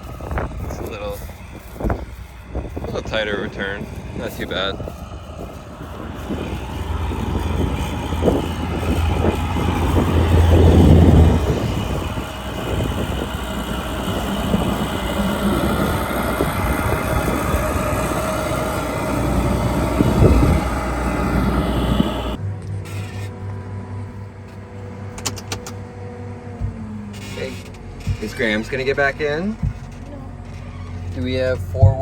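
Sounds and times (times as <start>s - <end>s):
heavy machinery engine running: 0.0s - 30.6s
knocks and rattles: 5.2s - 22.4s.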